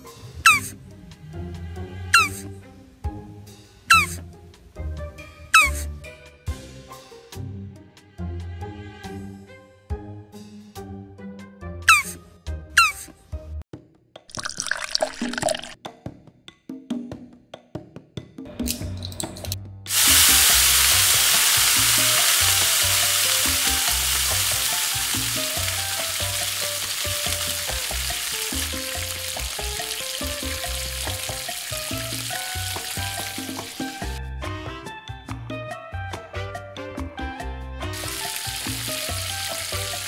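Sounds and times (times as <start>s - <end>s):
background music with bass: 18.4s - 40.0s
food sizzling in hot oil: 19.9s - 34.2s, 37.9s - 40.0s.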